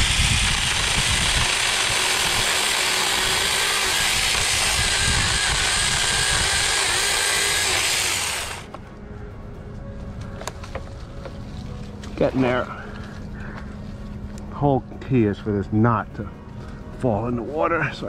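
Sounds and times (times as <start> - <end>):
chainsaw cutting tree limb: 0.0 - 8.7.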